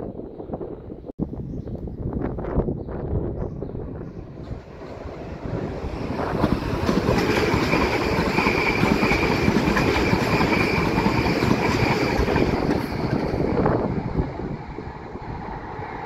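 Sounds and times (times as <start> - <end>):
train wheels rumbling on rails: 4.2 - 16.0.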